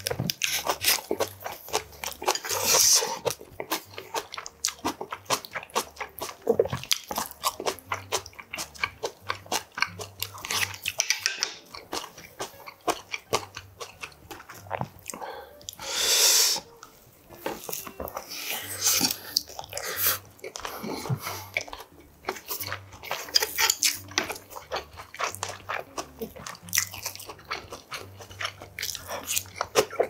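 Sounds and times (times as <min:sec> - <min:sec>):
wet chewing and biting: 0:00.0 - 0:15.8, 0:16.6 - 0:30.0.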